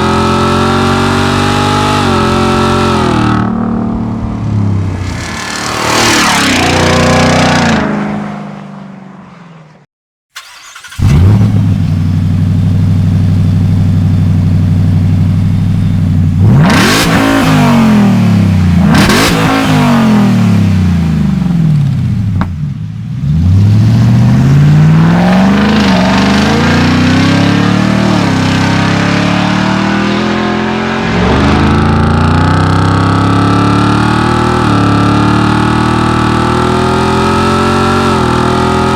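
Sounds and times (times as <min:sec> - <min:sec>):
truck engine revving and idling: 0:10.5 - 0:38.9.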